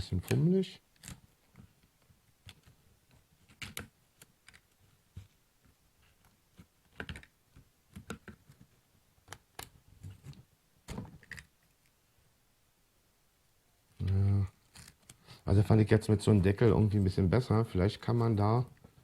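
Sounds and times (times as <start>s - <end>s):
small plastic clicks and knocks: 6.8s - 11.5s.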